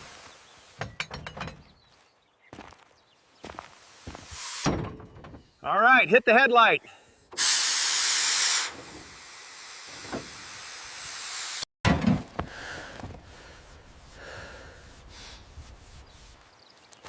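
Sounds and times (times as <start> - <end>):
steam locomotive hissing steam: 4.2 - 4.7, 7.4 - 11.7.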